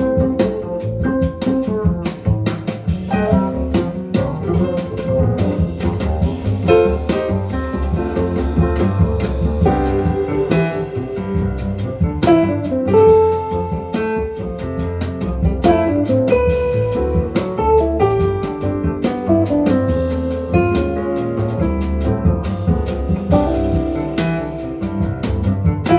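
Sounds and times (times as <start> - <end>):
double bass: 0.0 - 25.9
drum kit cymbals: 0.0 - 25.9
guitar: 0.0 - 25.9
piano: 0.0 - 25.9.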